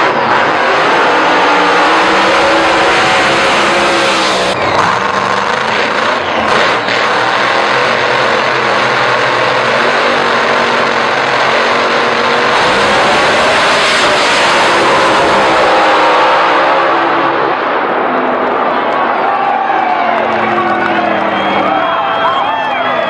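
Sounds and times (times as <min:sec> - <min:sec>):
racing car engine roaring: 0:00.0 - 0:23.0.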